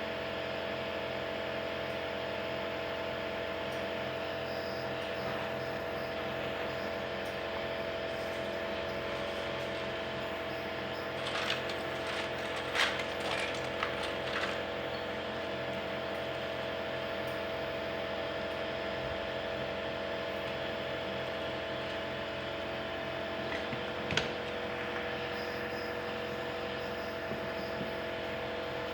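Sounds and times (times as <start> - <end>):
machine hum: 5.0 - 18.1.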